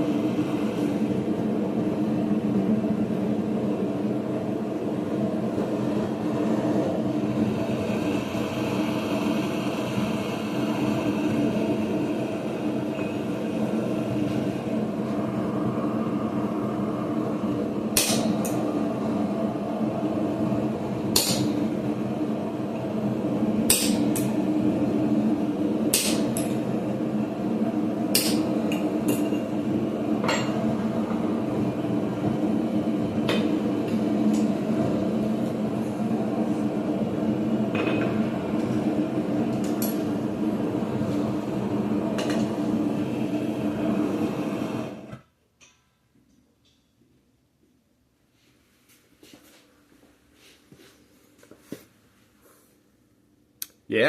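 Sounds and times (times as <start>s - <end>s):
steady low hum: 0.0s - 45.1s.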